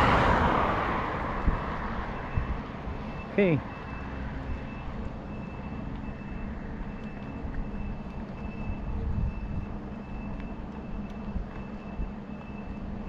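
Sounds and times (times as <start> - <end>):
wind rumble on microphone: 0.0 - 3.2, 6.7 - 13.0.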